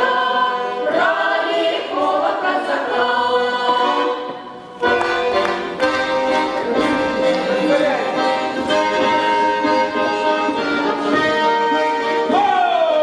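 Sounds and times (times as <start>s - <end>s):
choir singing in several voices: 0.0s - 7.6s.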